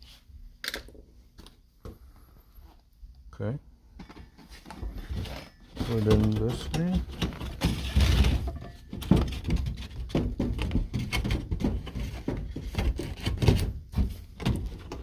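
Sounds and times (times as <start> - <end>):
air filter scraping: 4.4 - 8.6
filter knocking and thunking: 6.0 - 15.0.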